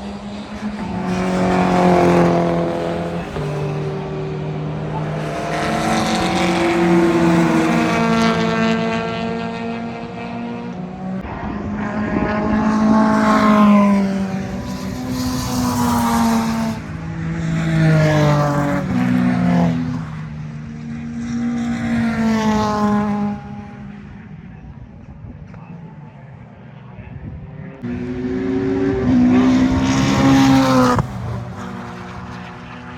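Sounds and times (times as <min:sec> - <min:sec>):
race cars passing at speed: 0:00.0 - 0:32.9.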